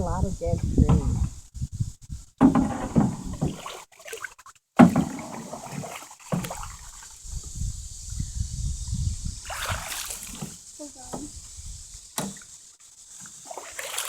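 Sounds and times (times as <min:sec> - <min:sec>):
canoe paddle sounds: 0:02.4 - 0:07.3, 0:09.4 - 0:11.4, 0:12.0 - 0:14.0
water sloshing: 0:02.4 - 0:07.3, 0:09.4 - 0:11.3, 0:13.1 - 0:14.0.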